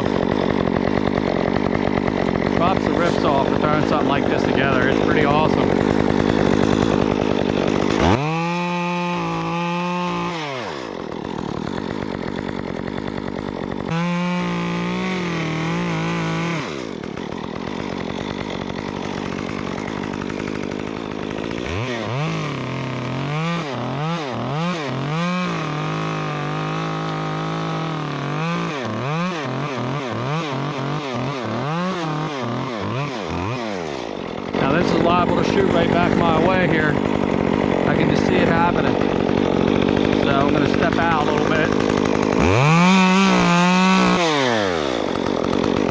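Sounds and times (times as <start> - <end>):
chainsaw revving and idling: 0.0 - 45.9.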